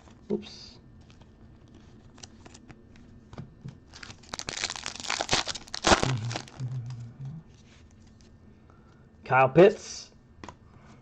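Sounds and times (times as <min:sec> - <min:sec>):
plastic wrapper crinkling and tearing: 0:01.1 - 0:02.8, 0:03.9 - 0:06.8.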